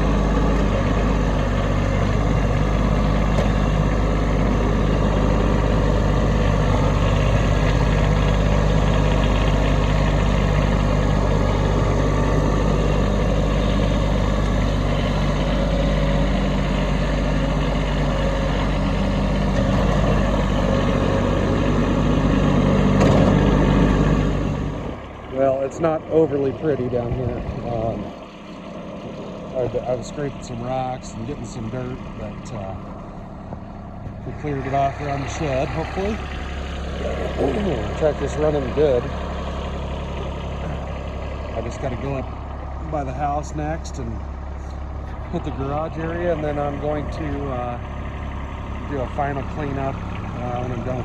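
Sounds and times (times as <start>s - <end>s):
tractor diesel engine running: 0.0s - 51.0s.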